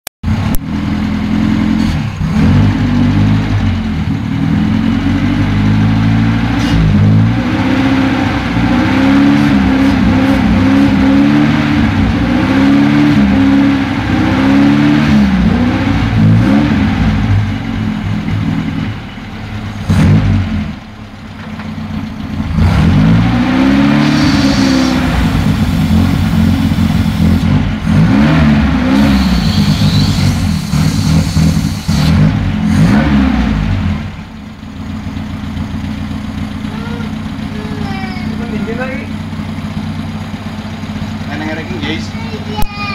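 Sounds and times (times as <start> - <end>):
car engine revving: 0.3 - 20.9, 22.0 - 42.6.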